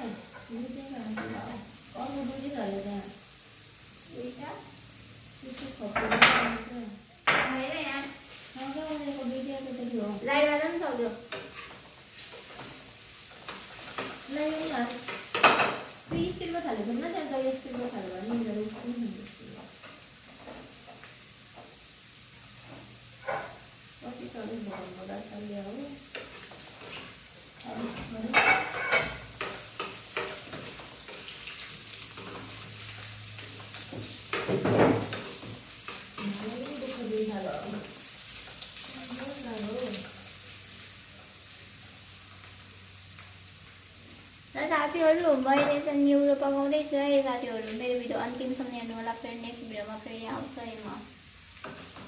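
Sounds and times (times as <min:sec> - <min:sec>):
ferns sizzling in a pan: 0:00.0 - 0:52.0
utensil scraping a pan: 0:26.1 - 0:33.0.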